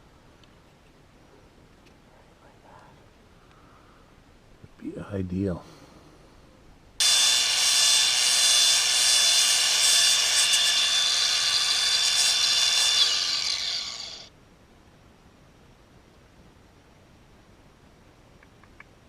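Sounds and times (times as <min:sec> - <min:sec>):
power tool whining: 0:07.0 - 0:14.3.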